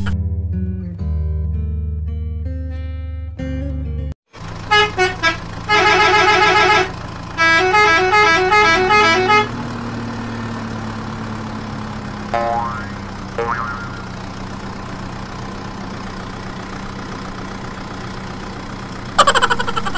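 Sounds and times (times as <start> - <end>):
electronic horn beeps: 4.7 - 9.5.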